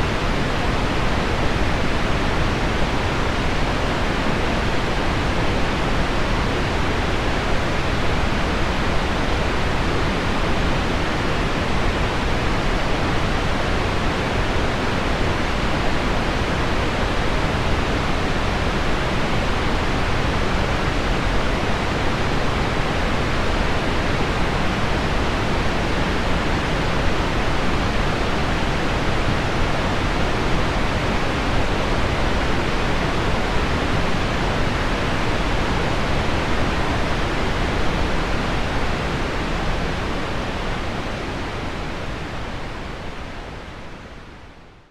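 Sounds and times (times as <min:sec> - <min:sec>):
low-pitched pink noise: 0:00.0 - 0:44.9.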